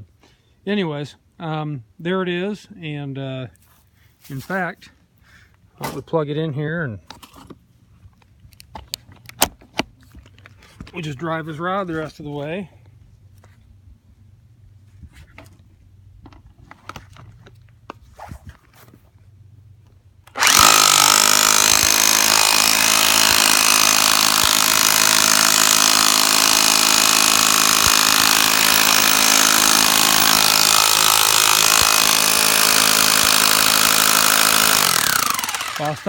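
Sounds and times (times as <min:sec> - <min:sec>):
rotary hammer running: 0:20.3 - 0:36.0.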